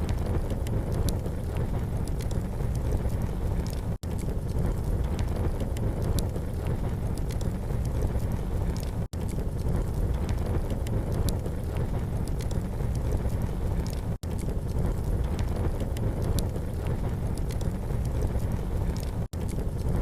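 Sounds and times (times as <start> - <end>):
campfire crackling and popping: 0.0 - 20.0
fire low rumble: 0.0 - 20.0.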